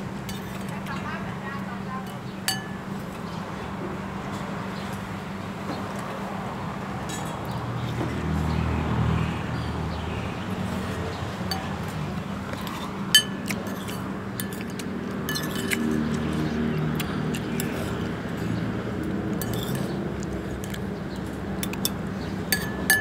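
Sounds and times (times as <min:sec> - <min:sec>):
cutlery clinking on a plate: 0:12.7 - 0:16.0, 0:21.6 - 0:23.0.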